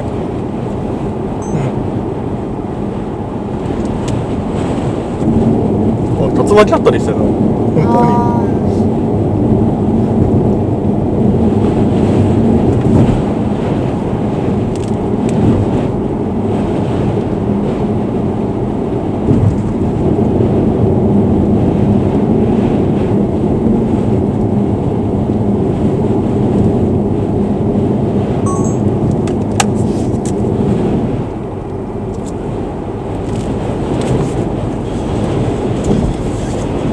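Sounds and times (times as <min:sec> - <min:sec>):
gusty wind on car: 0:00.0 - 0:36.9
road noise inside car: 0:00.0 - 0:36.9.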